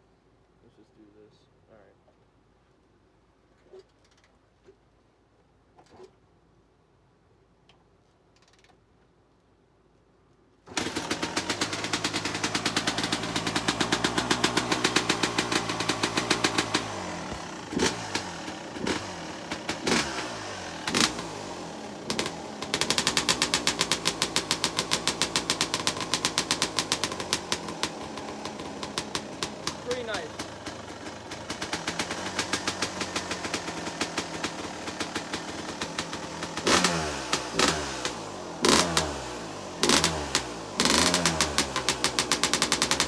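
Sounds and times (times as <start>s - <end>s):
two-stroke engine fast idle: 10.7s - 43.0s
engine backfire pops: 22.1s - 30.8s, 31.4s - 43.0s.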